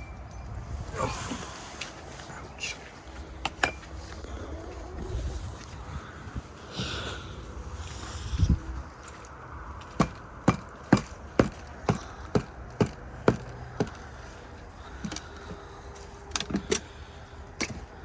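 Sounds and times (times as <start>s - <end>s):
sharp knocks: 9.9s - 14.0s.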